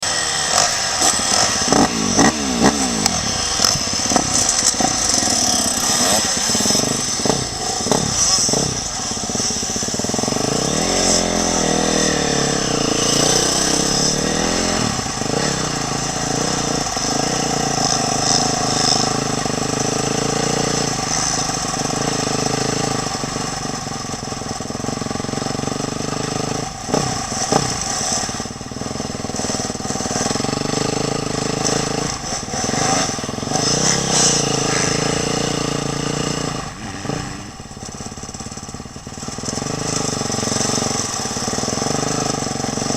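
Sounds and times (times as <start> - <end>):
motocross bike engine revving: 0.0 - 42.9.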